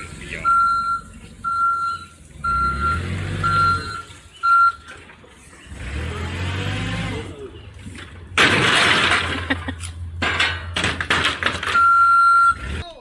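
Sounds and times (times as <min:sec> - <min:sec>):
truck reversing alarm beeping: 0:00.0 - 0:05.0, 0:11.6 - 0:12.8
truck engine rumble: 0:00.0 - 0:13.0.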